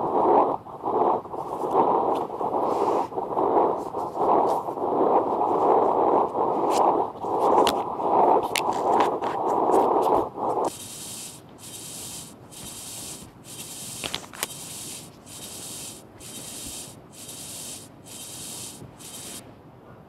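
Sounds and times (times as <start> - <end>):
short hissing bursts: 0.0 - 6.1, 6.7 - 19.4
loud noisy burst: 10.7 - 19.4.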